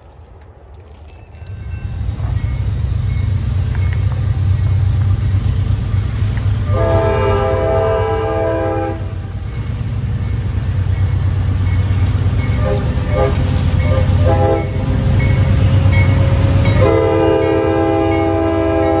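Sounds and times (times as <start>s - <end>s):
train rumbling past: 0.0s - 19.0s
locomotive air horn: 6.6s - 9.2s, 12.6s - 14.9s, 16.7s - 19.0s.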